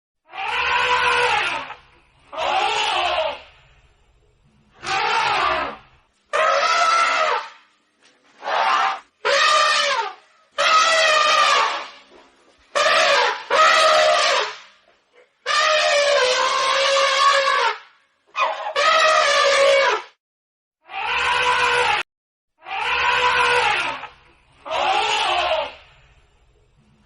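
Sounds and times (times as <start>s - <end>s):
elephant trumpeting: 0.3s - 3.4s, 4.8s - 7.6s, 8.4s - 12.1s, 12.7s - 14.7s, 15.5s - 20.1s, 20.8s - 22.0s, 22.6s - 25.9s.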